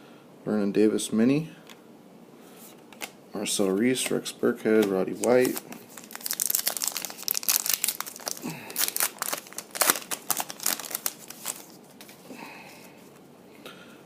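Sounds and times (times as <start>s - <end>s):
foil wrapper crinkling and tearing: 4.8s - 12.2s.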